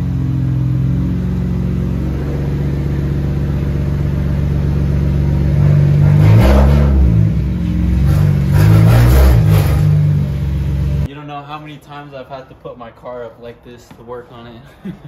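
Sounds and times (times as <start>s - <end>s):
car engine revving: 0.0s - 11.1s.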